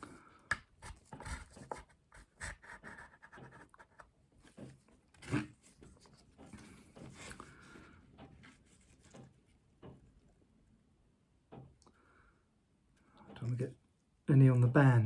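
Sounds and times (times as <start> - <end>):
pipe cleaner scratching: 0.8 - 7.7.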